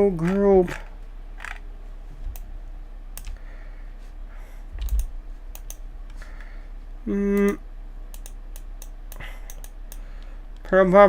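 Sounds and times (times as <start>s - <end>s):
low steady hum: 0.0s - 11.0s
keyboard and mouse clicks: 3.2s - 3.4s, 4.8s - 6.2s, 7.4s - 10.0s.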